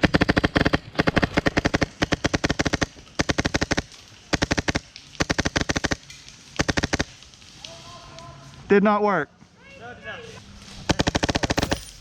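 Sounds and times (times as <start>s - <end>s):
airsoft rifle automatic fire: 0.0s - 6.0s, 6.6s - 7.1s, 10.9s - 12.0s.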